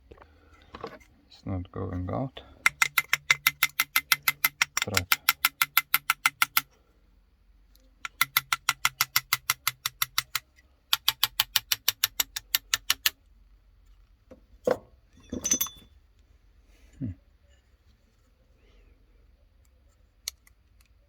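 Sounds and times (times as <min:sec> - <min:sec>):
ratchet wrench clicking: 0:02.7 - 0:06.7, 0:08.1 - 0:13.1.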